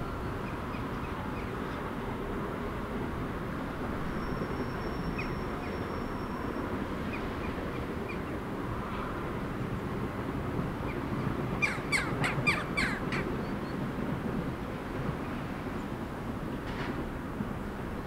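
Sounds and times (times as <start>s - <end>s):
low rumble of background noise: 0.0s - 18.0s
bird harsh calls: 11.6s - 13.5s.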